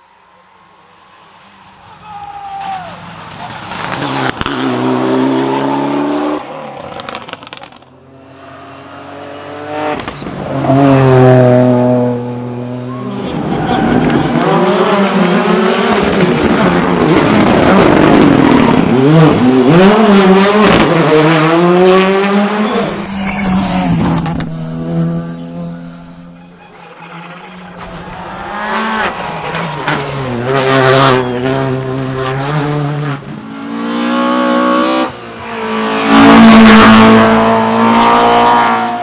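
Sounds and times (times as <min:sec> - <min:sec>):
rally car engine revving hard: 0:03.5 - 0:26.4, 0:27.2 - 0:39.0.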